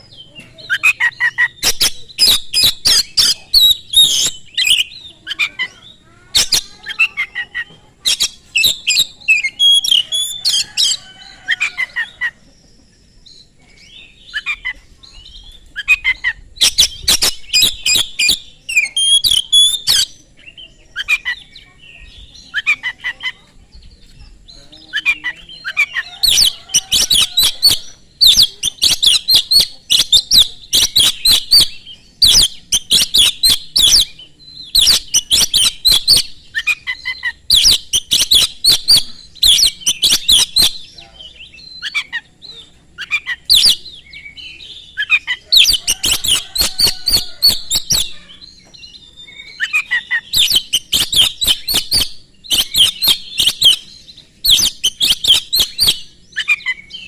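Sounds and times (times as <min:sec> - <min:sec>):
bird singing high sharp notes: 0:25.8 - 0:42.1, 0:43.0 - 0:57.0.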